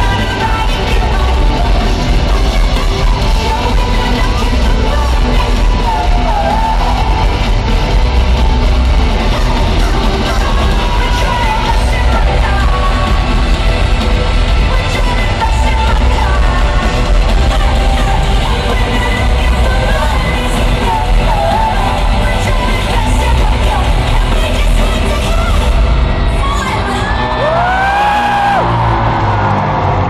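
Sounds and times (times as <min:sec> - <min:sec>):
lead vocal singing: 0:00.0 - 0:28.8
live rock band playing: 0:00.0 - 0:29.9
crowd singing: 0:00.0 - 0:30.0
distorted guitars: 0:00.0 - 0:30.0
heavy bass: 0:00.0 - 0:30.0.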